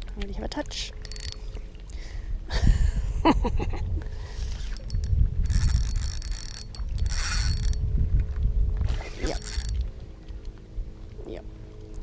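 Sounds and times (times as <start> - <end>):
wind rumble: 0.9 - 12.0
fishing reel ticking: 1.0 - 1.6, 4.6 - 7.9, 9.3 - 9.8.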